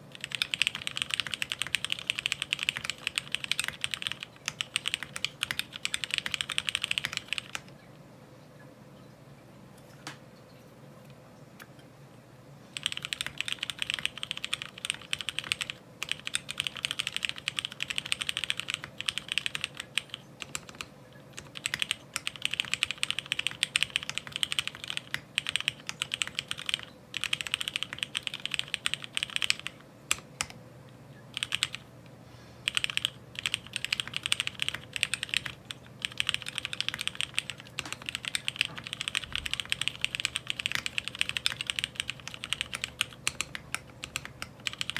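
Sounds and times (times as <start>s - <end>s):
mechanical keyboard key clacks: 32.7s - 44.9s.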